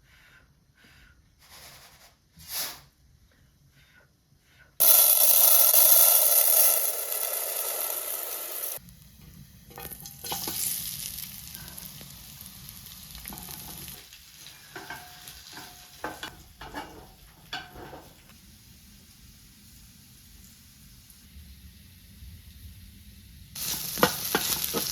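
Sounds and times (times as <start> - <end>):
food sizzling: 4.8 - 24.9
utensil stirring: 13.1 - 18.4, 23.6 - 24.9
utensil clinking against pan: 14.6 - 18.2, 23.6 - 24.9.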